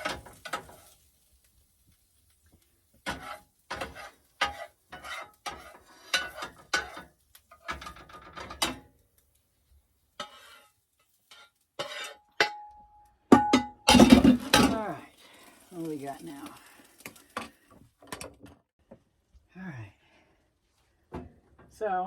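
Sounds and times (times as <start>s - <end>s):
utensil scraping a dish: 3.0s - 8.6s, 10.2s - 12.3s.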